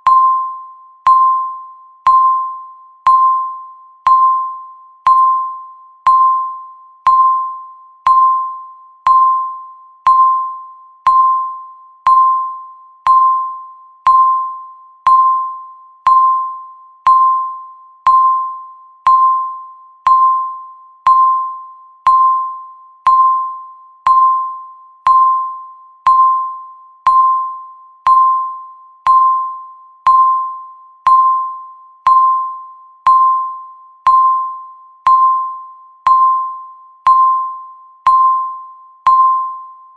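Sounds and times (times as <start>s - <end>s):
electronic timer ticks: 31.0s - 39.5s.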